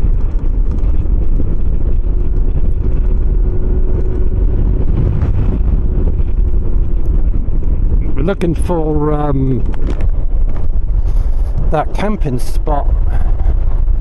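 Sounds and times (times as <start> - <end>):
motor scooter running: 0.0 - 8.2
wind buffeting microphone: 0.0 - 14.0.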